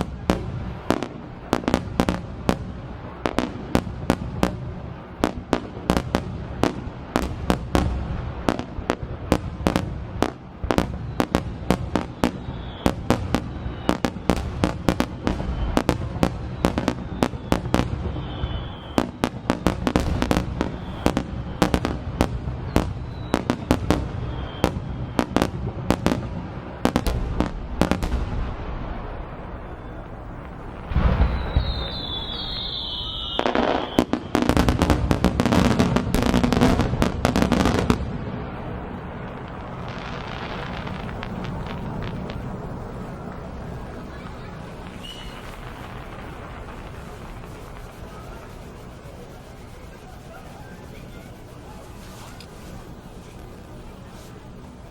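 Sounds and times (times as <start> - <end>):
deep firework boom: 0.0 - 49.2
faint firework whistle: 0.0 - 54.9
fireworks crackling bursts: 0.0 - 54.9
rumble of shell explosions: 26.7 - 48.0.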